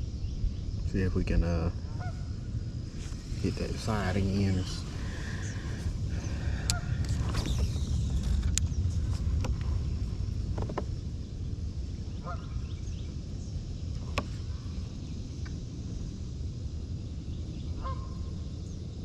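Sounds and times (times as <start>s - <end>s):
low rumble: 0.0s - 18.9s
distant geese honking: 3.0s - 7.5s, 12.1s - 12.7s, 17.8s - 18.2s.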